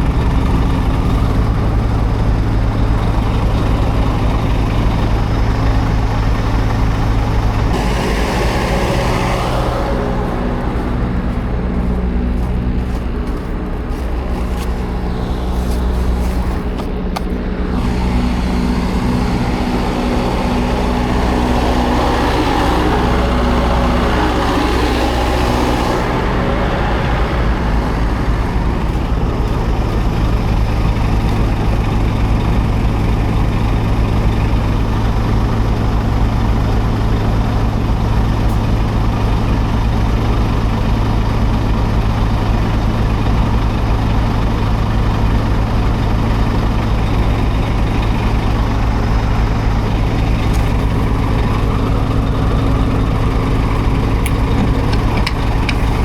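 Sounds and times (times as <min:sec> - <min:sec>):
diesel truck engine running: 0:00.0 - 0:56.0
rushing noise: 0:06.0 - 0:31.2.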